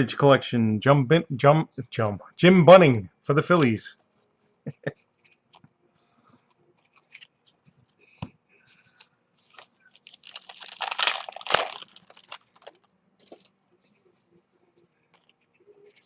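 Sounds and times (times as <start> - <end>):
wrapper crinkling: 9.4 - 13.5.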